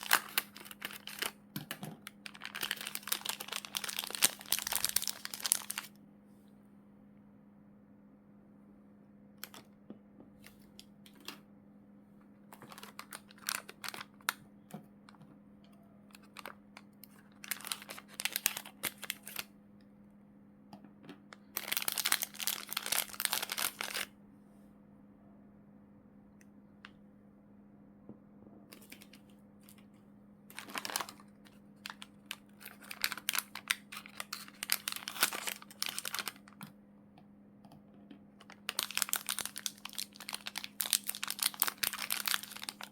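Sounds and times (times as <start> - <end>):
plastic bags crinkling: 0.0 - 5.9, 12.5 - 14.4, 16.2 - 19.5, 21.5 - 24.1, 30.5 - 36.7, 38.5 - 42.9
faint steady hum: 0.0 - 42.9.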